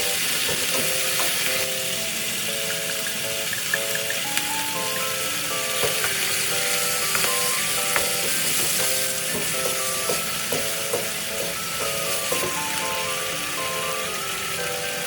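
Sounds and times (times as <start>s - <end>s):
chicken sizzling in a frying pan: 0.0s - 15.0s
light instrumental melody: 0.0s - 15.0s
utensil clicking against pan: 0.2s - 1.8s, 2.6s - 5.1s, 5.7s - 12.9s.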